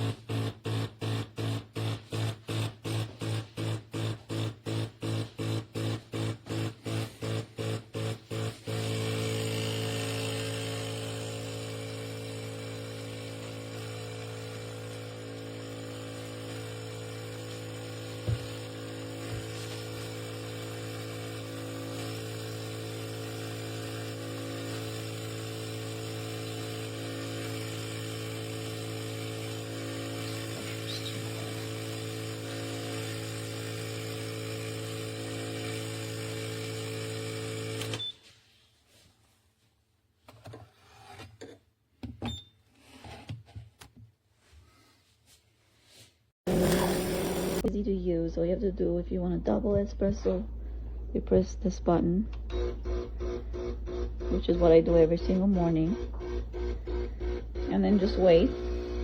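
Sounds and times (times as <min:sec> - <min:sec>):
espresso machine pump humming: 0:00.0 - 0:38.0, 0:46.5 - 0:47.7, 0:52.4 - 0:59.0.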